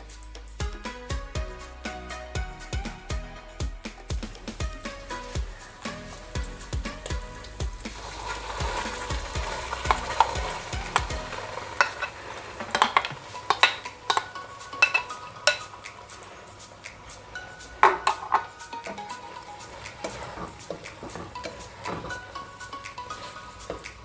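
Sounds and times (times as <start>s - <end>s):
food sizzling in butter: 4.8s - 24.0s
spoon clicking against frying pan: 11.8s - 16.1s.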